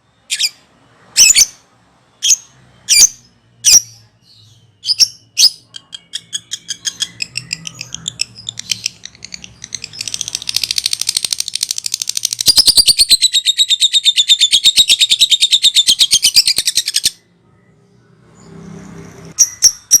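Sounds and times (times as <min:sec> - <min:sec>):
lovebird chattering trill: 0:04.8 - 0:17.2.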